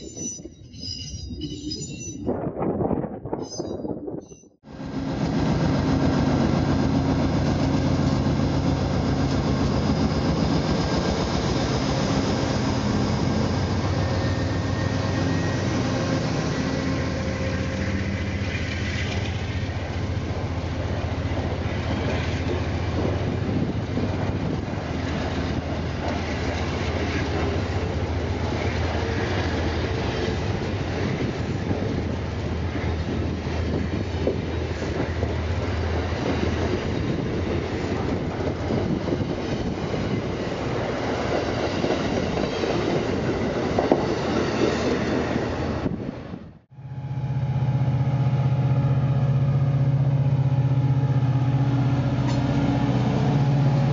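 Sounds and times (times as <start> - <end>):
diesel locomotive engine: 0.0 - 53.9
clickety-clack of train wheels: 18.2 - 20.0, 20.8 - 46.0, 52.2 - 52.6.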